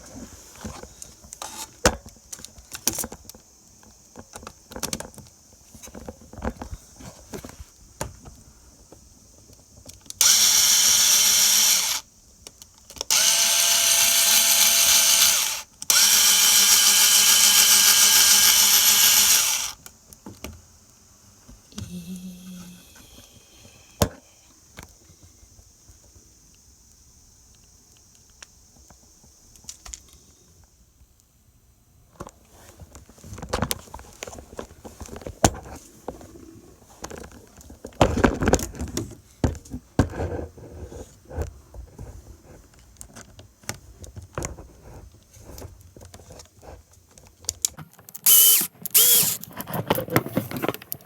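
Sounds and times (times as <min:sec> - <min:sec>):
electric drill running: 0:10.2 - 0:12.0, 0:13.1 - 0:19.8, 0:21.8 - 0:24.2, 0:48.2 - 0:49.5.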